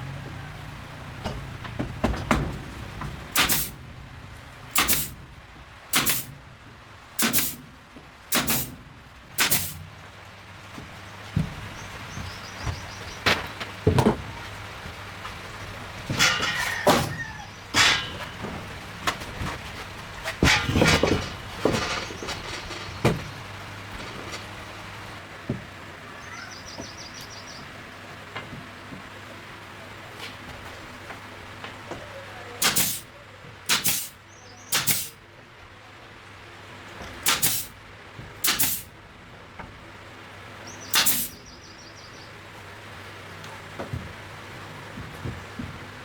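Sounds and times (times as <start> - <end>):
hand tool striking: 3.4 - 3.7, 4.8 - 5.1, 5.9 - 6.3, 9.4 - 9.8, 32.6 - 33.0, 33.7 - 34.1, 34.7 - 35.1, 37.3 - 37.7, 38.4 - 38.9, 40.9 - 41.4
sharp knocks: 16.0 - 19.6, 20.3 - 24.7.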